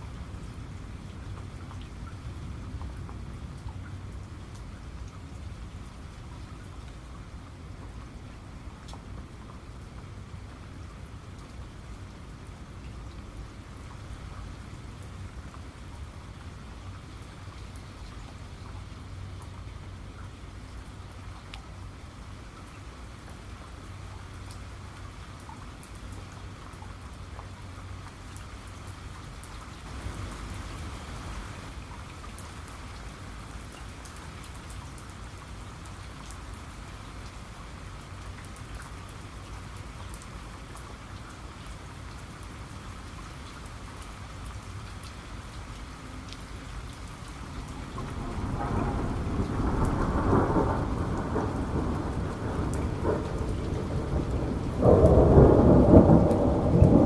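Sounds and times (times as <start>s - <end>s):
rain falling: 0.0s - 57.0s
raindrops ticking: 31.8s - 57.0s
low rumble of thunder: 47.2s - 57.0s.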